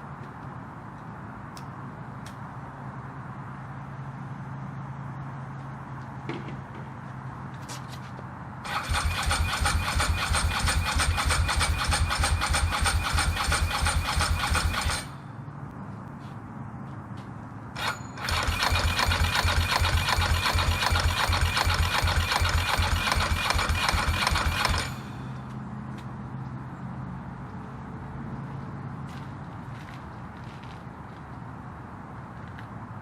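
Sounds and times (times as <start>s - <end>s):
electric starter cranking engine: 8.6s - 15.2s, 17.8s - 25.2s.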